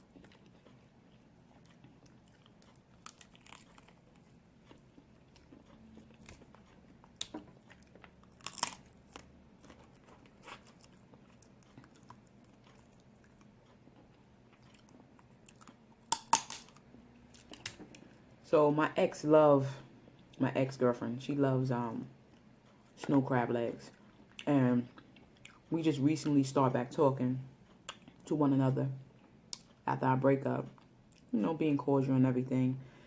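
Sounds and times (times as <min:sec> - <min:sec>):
chewing: 0:00.0 - 0:18.2, 0:23.9 - 0:25.7
crab shells cracking: 0:07.1 - 0:09.3, 0:16.0 - 0:16.8.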